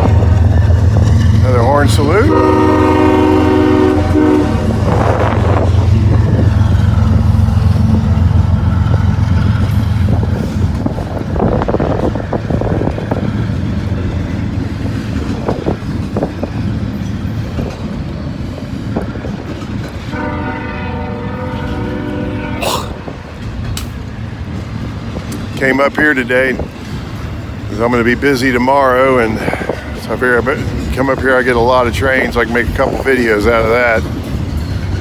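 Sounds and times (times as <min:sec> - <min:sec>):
train wheels clicking on rails: 0:00.0 - 0:21.9, 0:22.7 - 0:35.0
diesel locomotives running: 0:00.0 - 0:35.0
train horn: 0:01.5 - 0:06.5, 0:20.1 - 0:23.3.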